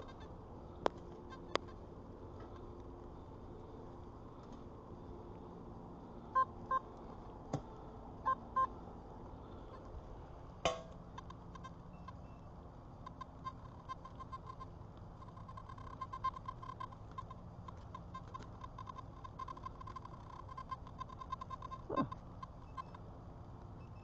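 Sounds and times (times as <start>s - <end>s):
metal detector beeps: 13.2s - 14.7s, 15.3s - 17.0s, 18.1s - 23.0s, 23.8s - 24.0s.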